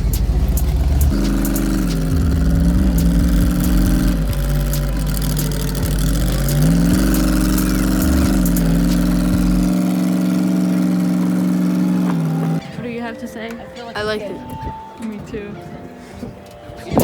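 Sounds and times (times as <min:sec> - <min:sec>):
truck engine revving: 0:00.0 - 0:12.8.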